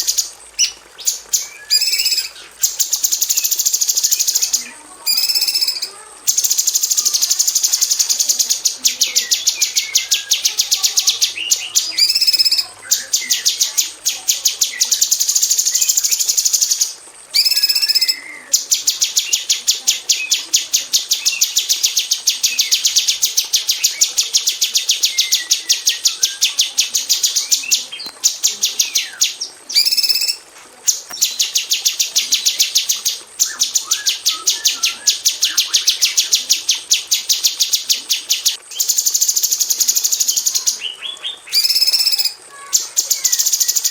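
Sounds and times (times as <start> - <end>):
bird whistling: 0.0 - 13.8, 14.7 - 18.6, 28.6 - 30.4, 31.1 - 42.4
bird calling rapid sharp notes: 0.0 - 40.8, 41.4 - 43.9.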